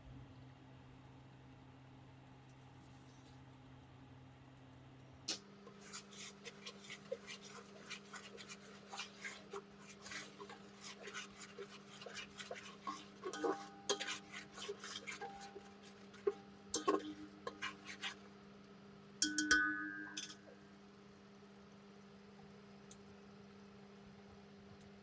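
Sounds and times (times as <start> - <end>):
kitchen knocks and scrapes: 5.7 - 18.2.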